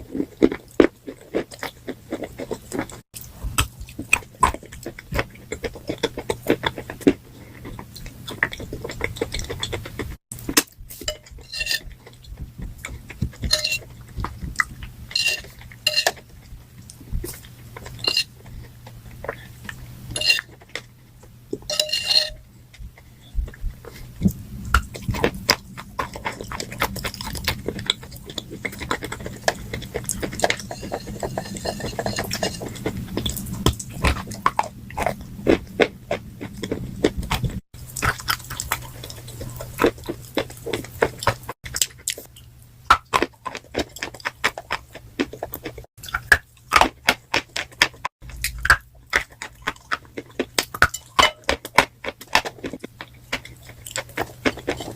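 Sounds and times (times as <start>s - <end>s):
faint low hum: 0.0s - 43.0s
chalk being chewed: 23.0s - 50.8s.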